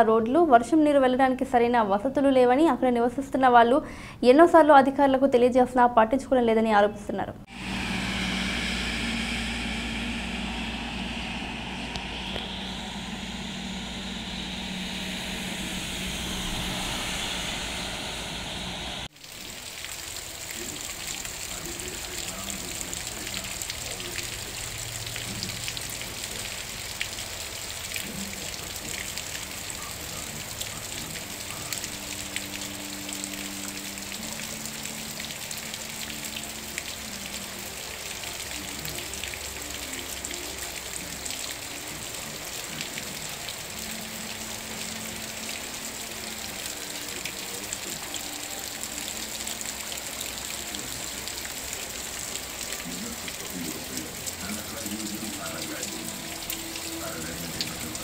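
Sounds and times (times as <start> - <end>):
faint low hum: 7.4 - 19.1
heavy rain: 7.5 - 58.0.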